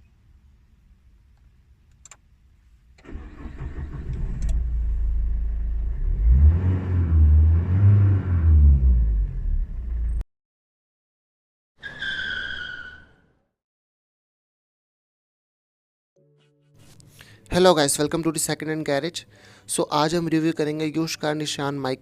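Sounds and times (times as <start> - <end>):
diesel engine starting and revving: 3.0 - 10.2.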